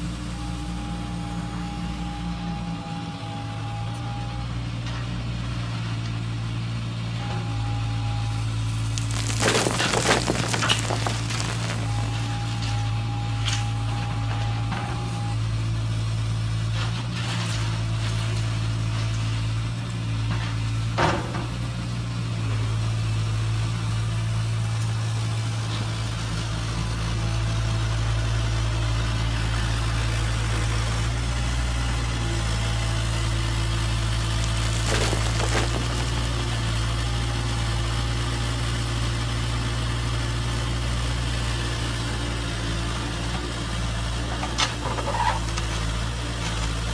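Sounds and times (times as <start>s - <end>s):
low motor hum: 7.2s - 15.3s, 30.2s - 38.3s.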